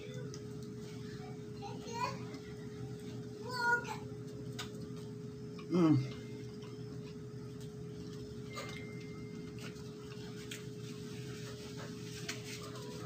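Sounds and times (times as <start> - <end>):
steady low hum: 0.0 - 13.0
person chewing food: 4.3 - 13.0.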